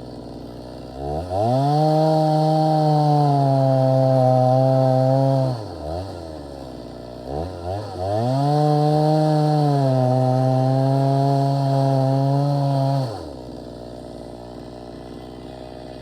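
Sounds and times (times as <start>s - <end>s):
chainsaw revving and idling: 0.0s - 16.0s.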